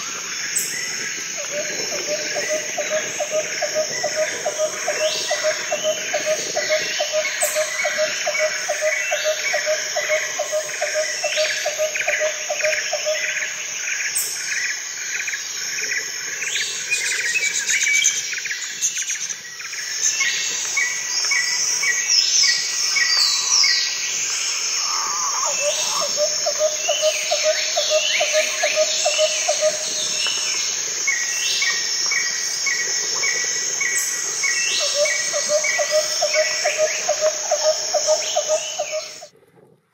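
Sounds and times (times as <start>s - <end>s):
insects shrilling: 20.0s - 39.2s.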